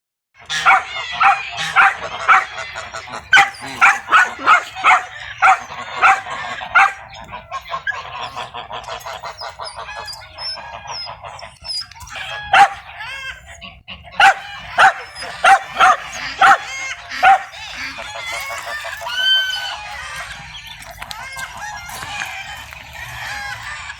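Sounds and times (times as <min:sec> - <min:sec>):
softer fowl calls: 0:00.4 - 0:20.5
geese honking: 0:00.4 - 0:23.9
dog barking: 0:00.5 - 0:02.6, 0:03.3 - 0:07.1, 0:12.4 - 0:12.9, 0:14.2 - 0:17.6.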